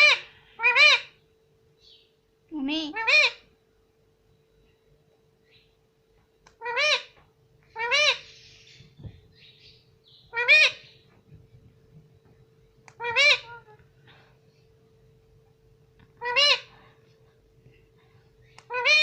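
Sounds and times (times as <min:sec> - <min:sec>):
parrot calling: 0:00.0 - 0:01.2, 0:02.7 - 0:03.5, 0:06.5 - 0:11.1, 0:12.9 - 0:13.8, 0:16.1 - 0:16.9, 0:18.4 - 0:19.0
faint steady hum: 0:00.0 - 0:19.0.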